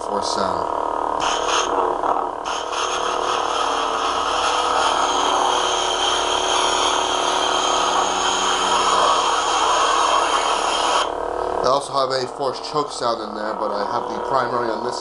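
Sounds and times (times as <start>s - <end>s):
lightsaber hum: 0.0s - 15.0s
lightsaber noisy rush: 1.2s - 11.1s.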